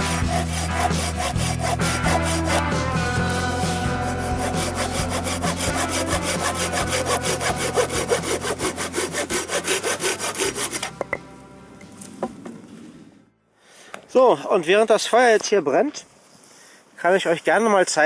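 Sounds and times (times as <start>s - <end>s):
hand saw cutting wood: 0.0s - 11.0s.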